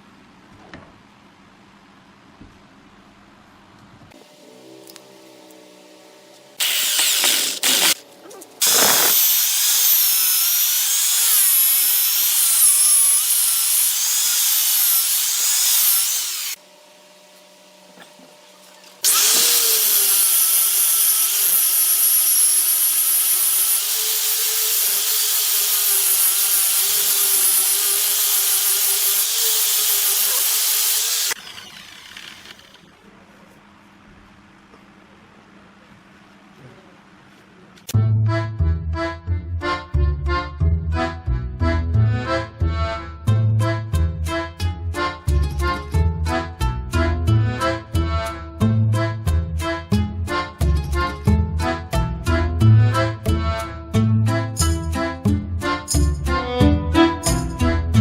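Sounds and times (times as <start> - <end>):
lathe tool cutting wood: 6.6 - 8.0, 8.6 - 16.6, 19.0 - 33.0.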